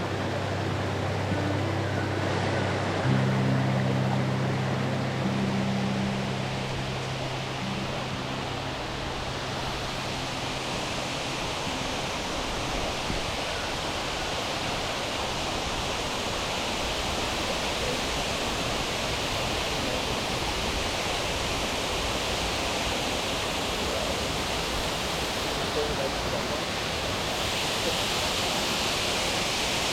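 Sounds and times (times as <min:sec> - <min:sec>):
low steady hum: 0:00.0 - 0:13.9
waterfall and creek rushing: 0:00.0 - 0:29.9.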